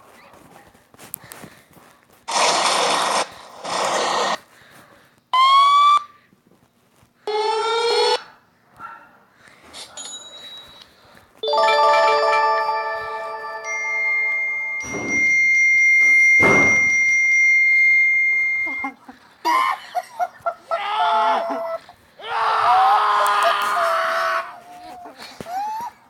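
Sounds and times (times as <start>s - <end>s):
upward sweeping tones: 11.4s - 15.6s
steady ringing tone: 11.4s - 18.6s.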